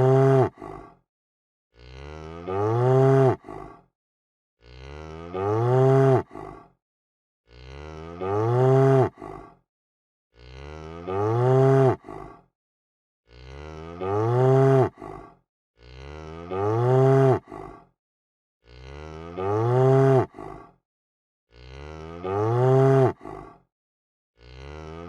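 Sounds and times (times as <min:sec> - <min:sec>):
cow mooing: 0:00.0 - 0:00.6, 0:01.8 - 0:03.5, 0:04.6 - 0:06.3, 0:07.5 - 0:09.2, 0:10.4 - 0:12.1, 0:13.3 - 0:15.0, 0:15.8 - 0:17.5, 0:18.7 - 0:20.3, 0:21.5 - 0:23.2, 0:24.4 - 0:25.0.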